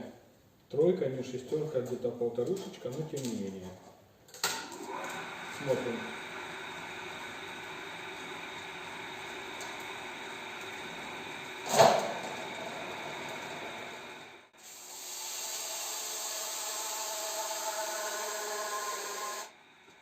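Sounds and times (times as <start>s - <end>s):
hole saw grinding through steel: 14.8s - 19.5s.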